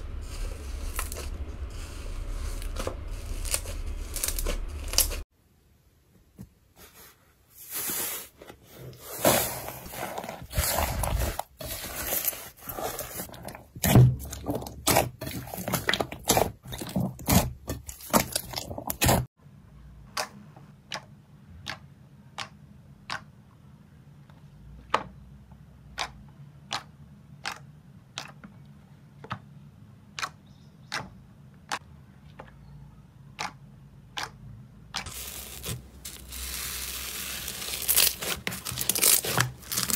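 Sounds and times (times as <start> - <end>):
slime crackling and crunching: 0.0 - 5.2, 9.2 - 19.3, 35.0 - 39.9.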